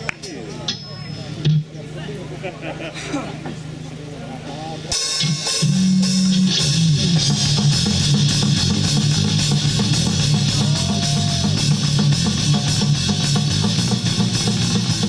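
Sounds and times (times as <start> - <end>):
drum kit with cymbals: 3.5 - 15.0
bass guitar: 4.5 - 15.0
electric guitar: 5.2 - 15.0.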